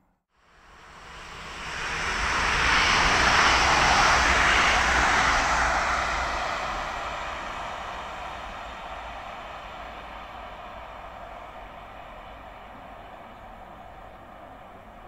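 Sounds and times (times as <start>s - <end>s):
train passing with rushing rumble: 0.5s - 15.0s.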